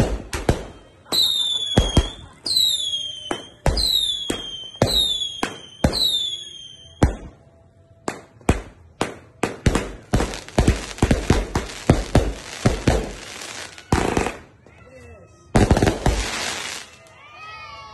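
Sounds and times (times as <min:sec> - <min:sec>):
firework bangs: 0:00.0 - 0:07.4, 0:08.1 - 0:14.6, 0:15.6 - 0:17.0
falling firework whistles: 0:00.2 - 0:07.3.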